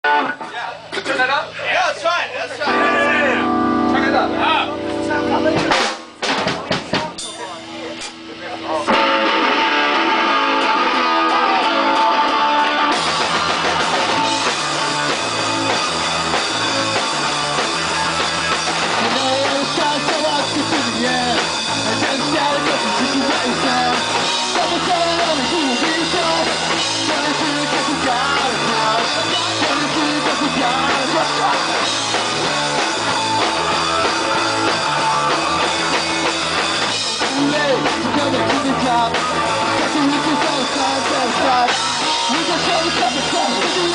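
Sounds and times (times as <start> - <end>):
drum kit: 0.0 - 1.6, 2.6 - 43.9
electric guitar: 0.0 - 1.6, 2.5 - 43.9
bass guitar: 0.0 - 43.9.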